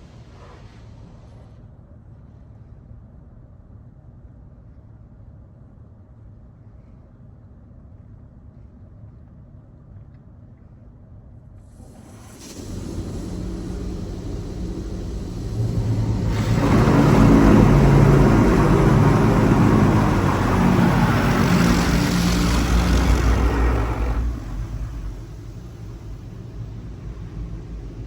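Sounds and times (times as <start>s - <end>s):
pump and motor hum: 11.6s - 28.0s
high-pressure water spray hissing: 11.8s - 28.0s.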